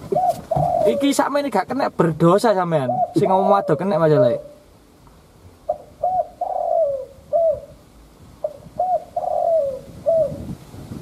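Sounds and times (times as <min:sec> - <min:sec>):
dove cooing: 0:00.0 - 0:01.8, 0:02.7 - 0:04.7, 0:05.6 - 0:10.6.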